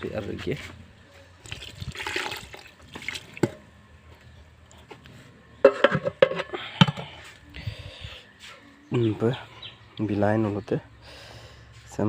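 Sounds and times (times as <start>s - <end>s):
liquid splashing: 1.4s - 3.5s
dish clattering: 5.6s - 7.0s.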